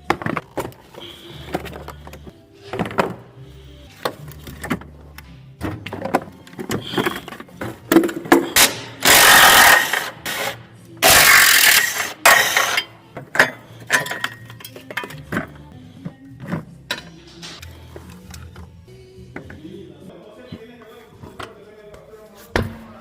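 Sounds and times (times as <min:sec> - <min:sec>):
background music: 0:00.0 - 0:23.0
tools clicking and clanking: 0:04.0 - 0:15.7
power tool bursts: 0:08.6 - 0:12.8.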